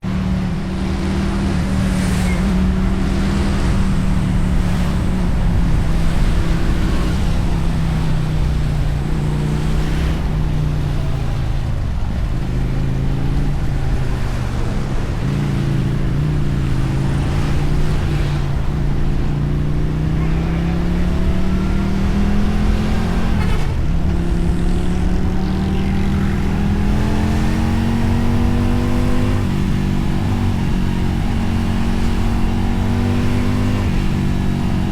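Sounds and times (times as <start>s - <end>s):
motorcycle engine and exhaust: 0.0s - 34.9s.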